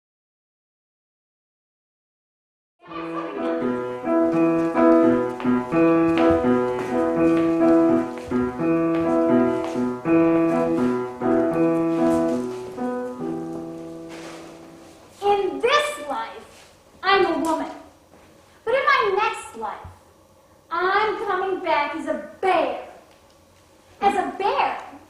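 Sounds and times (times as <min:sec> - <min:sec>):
piano chords: 0:02.8 - 0:15.5.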